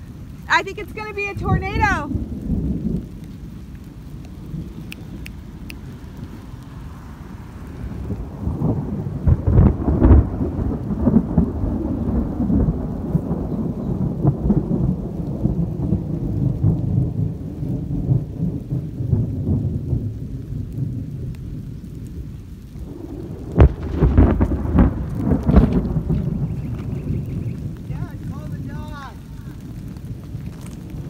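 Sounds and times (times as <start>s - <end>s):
thunder rumbling: 0.0s - 31.0s.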